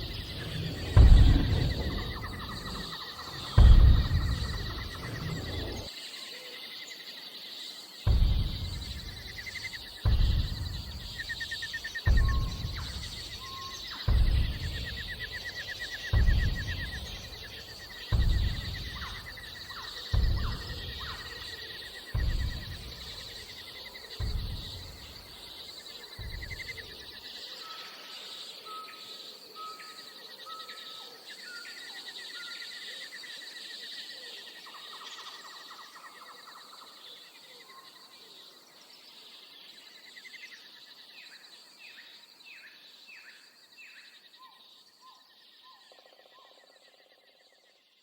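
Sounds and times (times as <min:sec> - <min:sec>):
deep thumps: 0:00.0 - 0:05.9, 0:08.0 - 0:27.2
birds calling: 0:00.0 - 0:06.6, 0:08.0 - 0:28.1.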